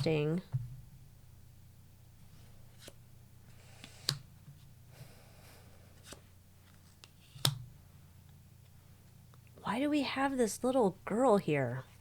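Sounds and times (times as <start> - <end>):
cards sliding and rustling: 2.2 - 4.7, 5.9 - 7.7.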